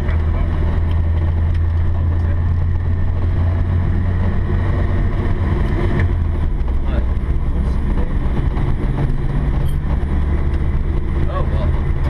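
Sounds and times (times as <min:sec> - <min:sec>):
car engine droning: 0:00.0 - 0:12.0
tyres on gravel road: 0:00.0 - 0:12.0.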